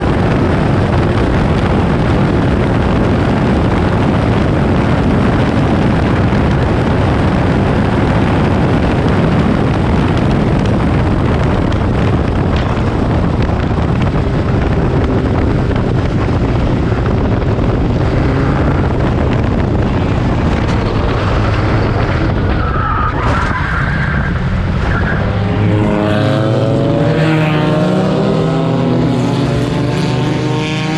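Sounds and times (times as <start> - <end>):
rush of noise: 0.0 - 30.9
race car engines passing: 12.3 - 30.9.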